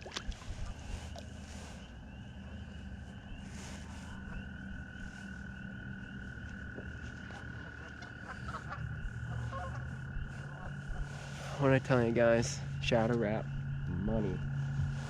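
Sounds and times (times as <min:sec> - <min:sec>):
frogs calling: 0:00.0 - 0:15.0.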